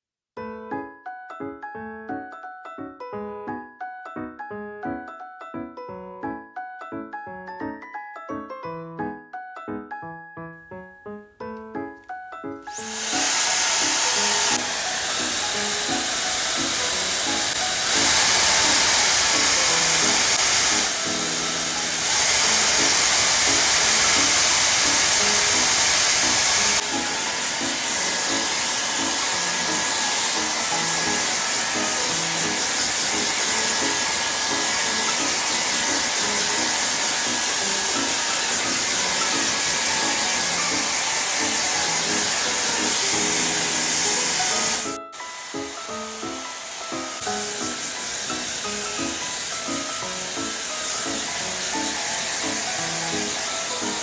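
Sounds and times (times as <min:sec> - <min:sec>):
light tune with repeating notes: 0:00.4 - 0:54.0
hair dryer blowing: 0:12.7 - 0:54.0.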